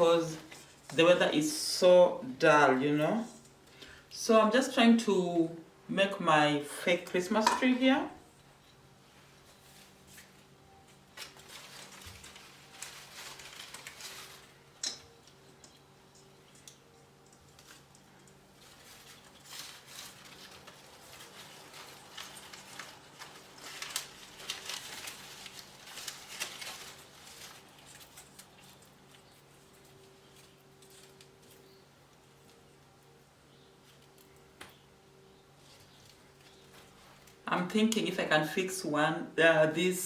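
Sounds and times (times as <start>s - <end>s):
faint steady hum: 0.0s - 40.0s
decorations rustling and clicking: 7.1s - 38.1s.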